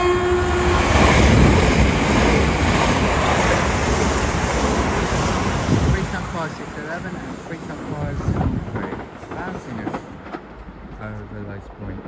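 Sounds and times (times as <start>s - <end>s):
train horn: 0.0s - 1.5s
trains passing at speed: 0.0s - 12.0s.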